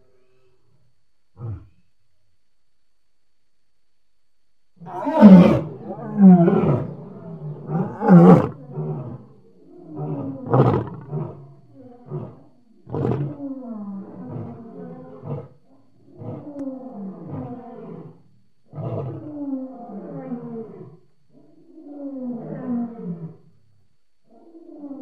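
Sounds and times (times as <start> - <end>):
lion roaring: 1.4 - 1.8, 4.8 - 23.5.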